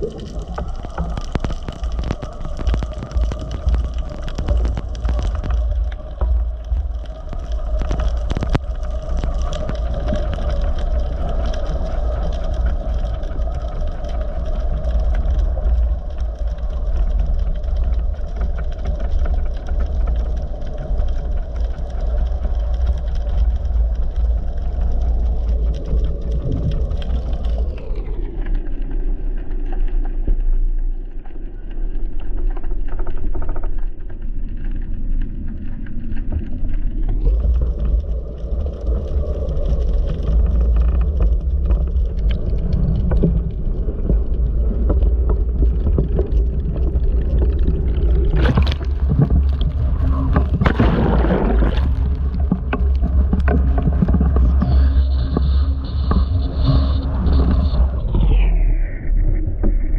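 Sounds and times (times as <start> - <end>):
strong wind buffeting microphone: 0.0 - 29.3.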